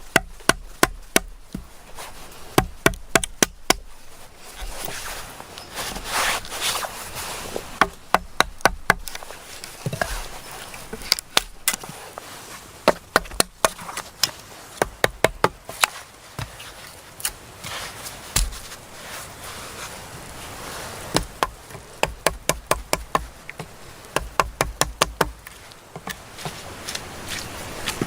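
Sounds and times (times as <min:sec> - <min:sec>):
tool knocking on wood: 0:21.2 - 0:25.4.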